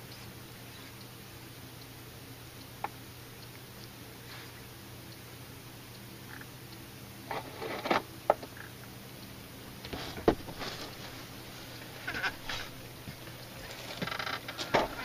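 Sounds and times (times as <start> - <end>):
short rustles: 9.9 - 12.8.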